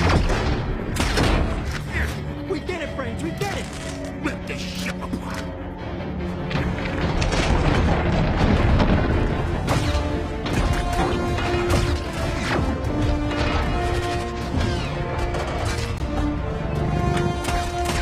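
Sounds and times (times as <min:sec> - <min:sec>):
dramatic film score: 0:00.0 - 0:18.0
heavy booms and crashing impacts: 0:07.0 - 0:10.4.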